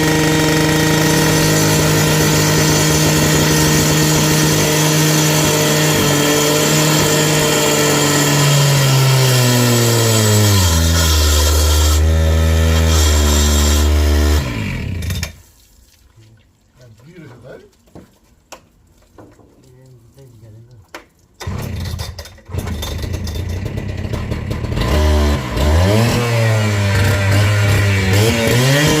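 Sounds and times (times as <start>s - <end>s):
motor running and slowing: 0.0s - 8.6s.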